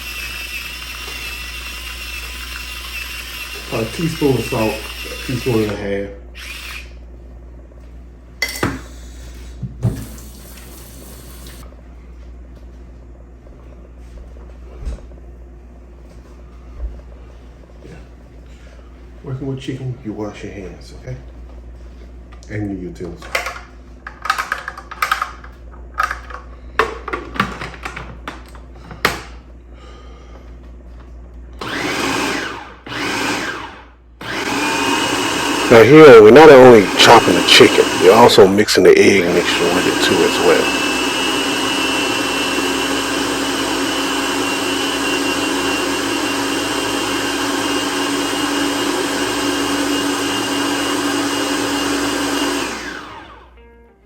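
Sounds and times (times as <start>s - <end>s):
food processor chopping: 0.0s - 6.9s, 31.6s - 38.5s, 39.2s - 53.4s.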